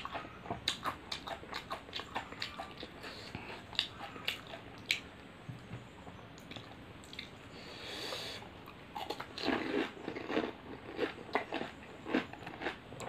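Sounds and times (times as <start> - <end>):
crisp food crunching: 9.0 - 12.8.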